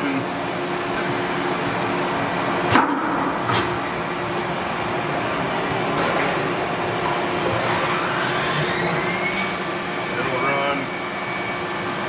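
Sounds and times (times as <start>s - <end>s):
machining center rushing noise: 0.6s - 7.5s.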